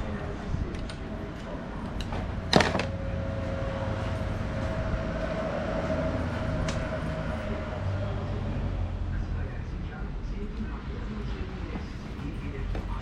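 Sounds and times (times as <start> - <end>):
mechanical whine: 0.0 - 9.5
low hum: 0.0 - 10.4.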